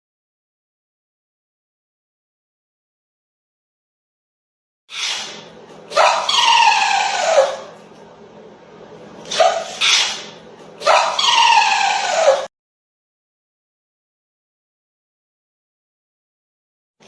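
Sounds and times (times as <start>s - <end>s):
dog yelping: 5.0s - 7.8s, 9.3s - 12.5s
dog howling: 5.9s - 7.8s, 9.3s - 12.5s.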